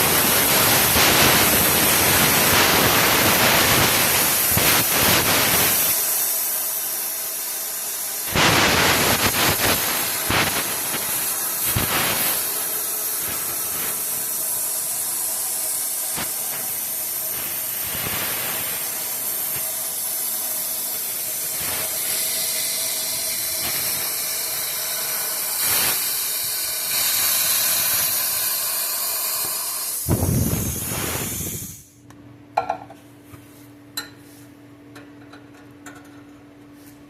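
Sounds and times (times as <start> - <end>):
plasma cutter hissing: 0.0 - 31.9.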